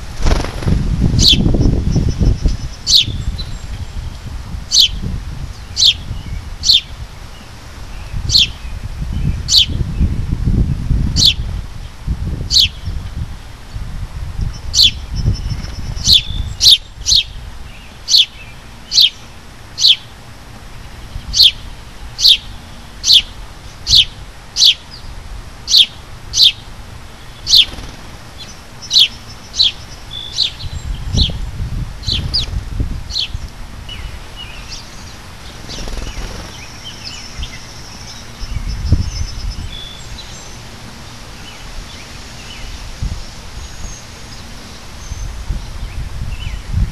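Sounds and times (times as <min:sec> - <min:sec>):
songbird chirping: 0:14.5 - 0:25.1, 0:25.7 - 0:31.4, 0:33.1 - 0:46.8.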